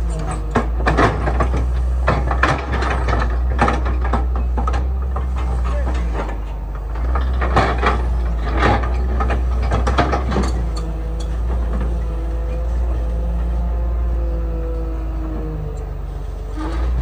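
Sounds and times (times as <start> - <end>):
metallic clanks and knocks: 0.0 - 12.8
excavator diesel engine running: 0.0 - 17.0.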